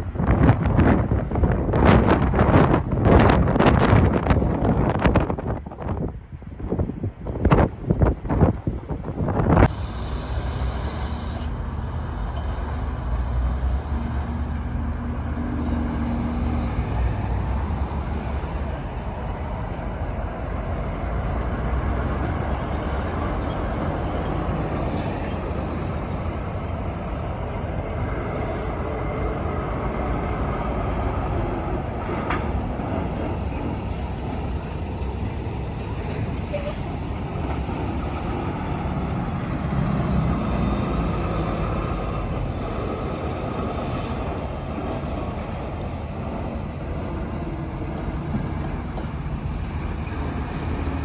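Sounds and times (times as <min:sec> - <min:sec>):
wind bumps on microphone: 0:00.0 - 0:09.9
trucks passing: 0:00.0 - 0:51.0.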